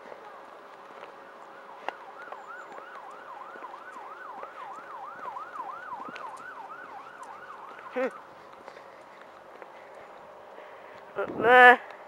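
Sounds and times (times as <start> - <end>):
level crossing alarm yelp: 4.3 - 8.3.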